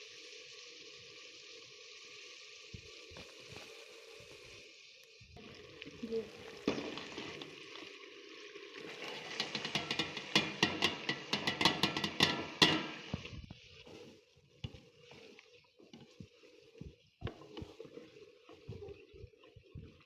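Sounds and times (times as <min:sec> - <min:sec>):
faint sizzle of frying: 0:00.0 - 0:20.0
spoon stirring and tapping in pan: 0:06.6 - 0:07.6, 0:08.8 - 0:20.0.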